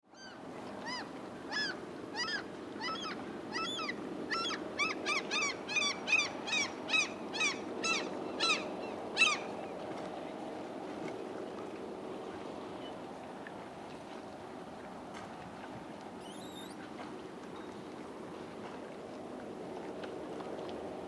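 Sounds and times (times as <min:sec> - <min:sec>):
seagull honking calls: 0:00.9 - 0:09.5.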